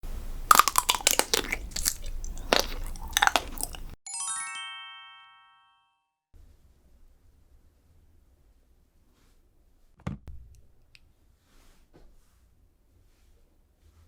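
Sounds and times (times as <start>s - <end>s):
crunchy bites and chewing: 0.4s - 4.0s
rising bell-like chime notes: 4.1s - 6.0s.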